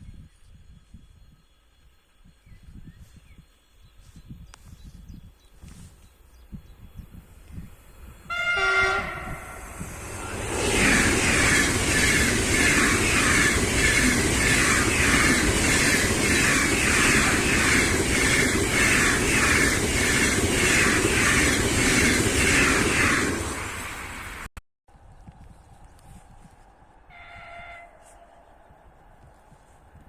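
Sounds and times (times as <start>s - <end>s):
train passing at speed: 7.3s - 24.5s.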